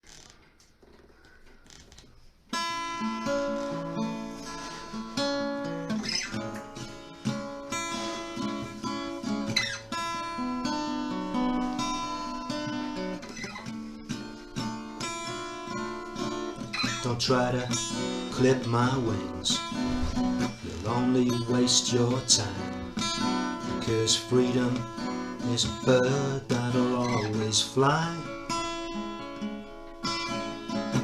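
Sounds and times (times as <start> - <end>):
acoustic guitar strumming chords: 2.5 - 31.0.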